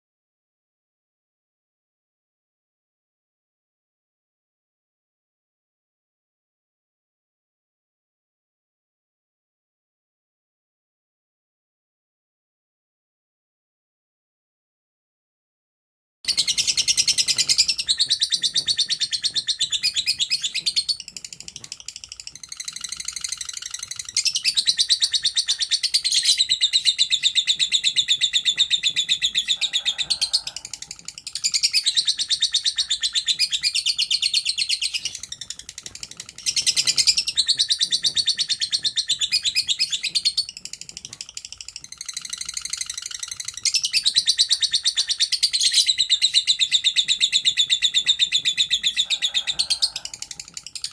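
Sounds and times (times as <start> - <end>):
lovebird trilling chirps: 16.3 - 40.5, 41.4 - 50.9.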